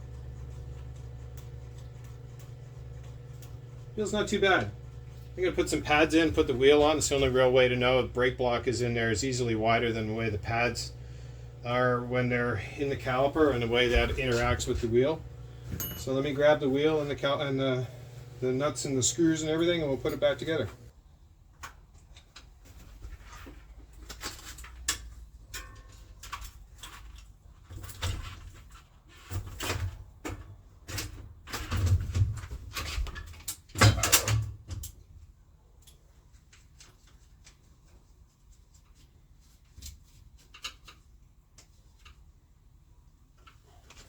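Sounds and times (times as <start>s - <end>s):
bike parts clicking and clunking: 15.7s - 16.2s.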